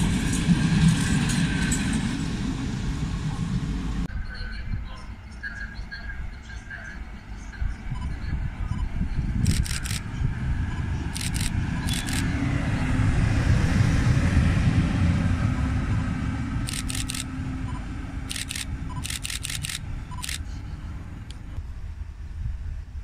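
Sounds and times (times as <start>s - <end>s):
train rumble: 0.0s - 23.0s
sharp clicks: 9.4s - 10.0s, 11.2s - 12.3s, 16.7s - 17.3s, 18.3s - 20.4s.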